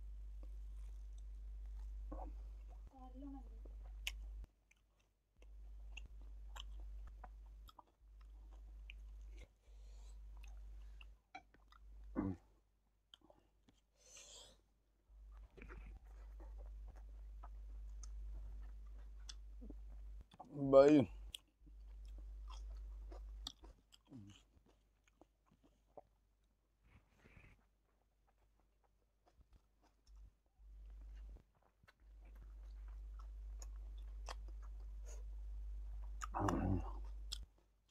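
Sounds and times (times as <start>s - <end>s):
low steady hum: 0.0s - 4.5s, 5.4s - 12.4s, 15.0s - 23.5s, 32.0s - 37.9s
chewing food: 0.2s - 12.4s, 13.0s - 37.9s.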